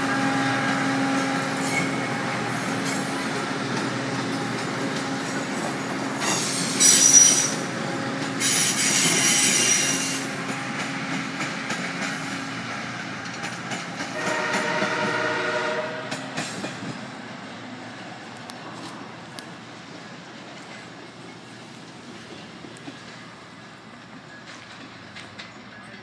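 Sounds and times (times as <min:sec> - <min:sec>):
train rumbling past: 0:00.0 - 0:26.0
train wheels squealing: 0:00.1 - 0:03.3, 0:06.2 - 0:10.6
train horn: 0:14.1 - 0:16.2
wheels clicking over rail joints: 0:20.4 - 0:26.0.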